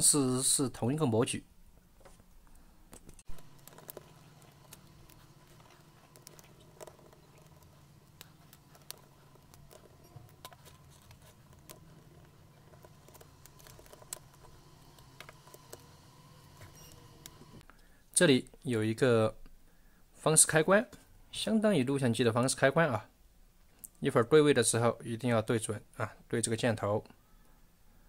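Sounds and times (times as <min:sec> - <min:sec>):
low steady hum: 0:00.0 - 0:18.6
small parts clicking and tapping: 0:02.9 - 0:17.8.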